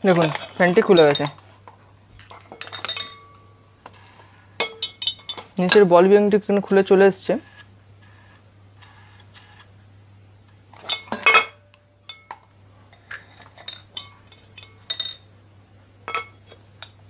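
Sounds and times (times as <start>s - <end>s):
metal parts clinking and clattering: 2.2s - 3.4s, 13.0s - 15.3s.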